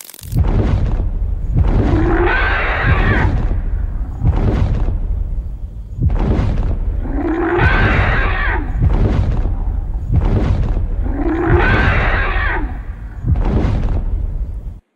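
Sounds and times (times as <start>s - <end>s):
steady low rumble: 0.3s - 14.9s
animal harsh calls: 1.6s - 4.3s, 7.0s - 9.8s, 10.9s - 13.4s.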